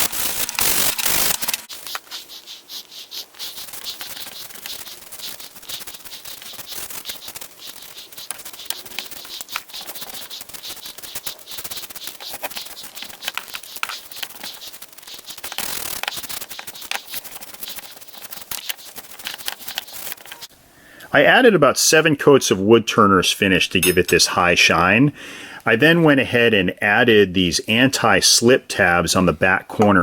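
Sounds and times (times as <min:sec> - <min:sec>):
hiss: 0:00.0 - 0:20.5
scratchy rubbing: 0:00.0 - 0:20.5
small clicks and ticks: 0:00.0 - 0:20.5.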